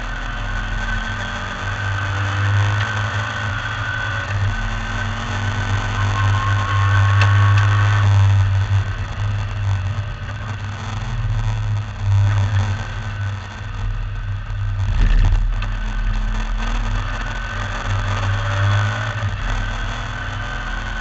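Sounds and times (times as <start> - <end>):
racing car engine: 0.0 - 21.0
deep rumble with knocks: 13.9 - 17.0.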